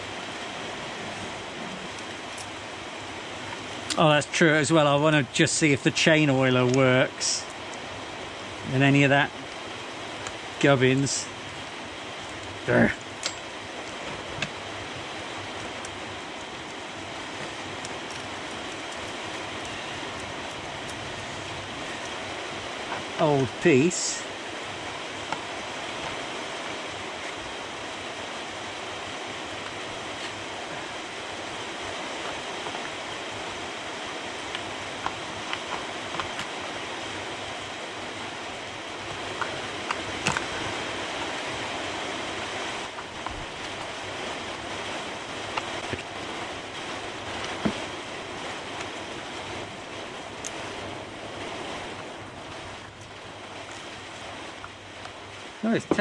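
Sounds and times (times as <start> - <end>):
steady rushing noise: 0.0 - 56.0.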